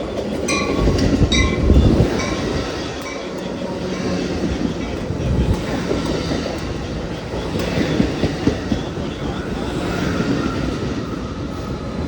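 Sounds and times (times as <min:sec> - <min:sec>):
wheels clattering over rail joints: 0:00.0 - 0:09.5
passenger train rumbling: 0:00.0 - 0:12.0.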